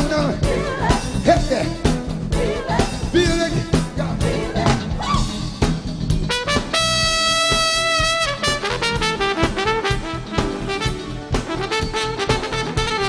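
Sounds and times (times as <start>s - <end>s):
drums: 0.0s - 13.0s
horn section playing: 6.2s - 13.0s.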